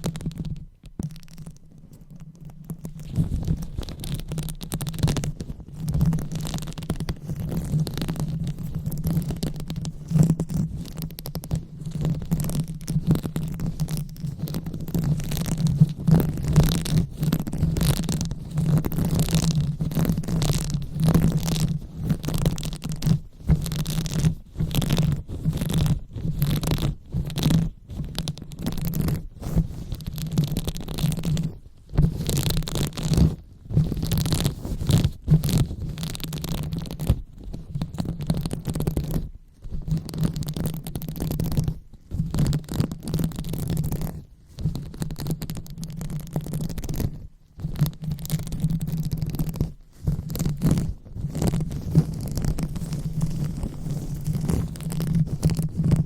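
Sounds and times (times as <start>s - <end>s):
rubbing on microphone: 0.0s - 56.0s.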